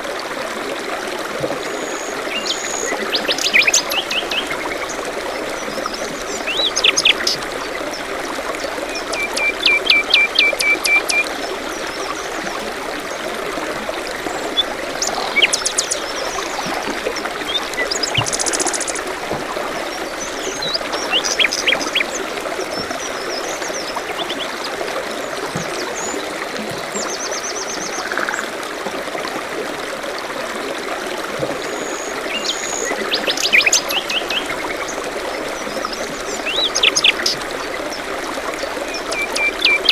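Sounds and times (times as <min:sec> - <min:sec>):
stream trickling: 0:00.0 - 0:39.9
songbirds chirping and trilling: 0:14.4 - 0:24.7.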